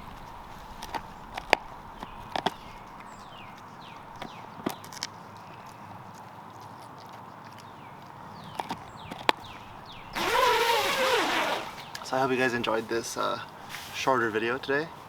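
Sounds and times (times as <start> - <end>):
small animal gnawing on stick: 0.0 - 12.1.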